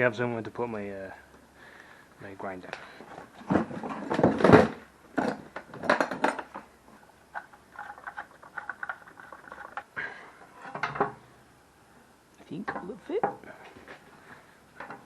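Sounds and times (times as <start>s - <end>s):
metal clanking and rattling: 3.4s - 6.7s.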